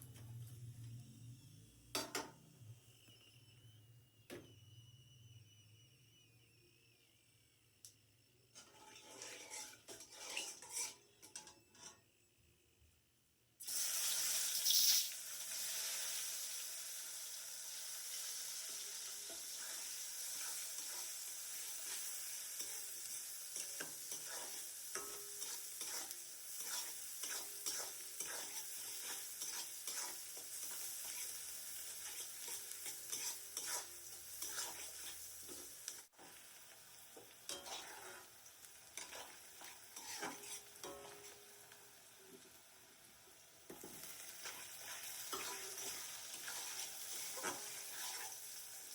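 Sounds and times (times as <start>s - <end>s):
food sizzling in hot oil: 8.6s - 11.8s, 13.6s - 48.9s
spatula scraping a pan: 8.6s - 12.1s, 19.2s - 36.4s, 37.2s - 41.6s, 43.7s - 48.9s.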